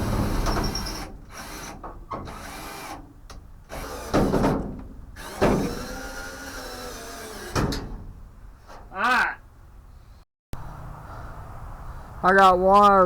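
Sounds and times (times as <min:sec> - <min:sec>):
power drill into sheet metal: 0:00.0 - 0:03.1, 0:03.7 - 0:08.0.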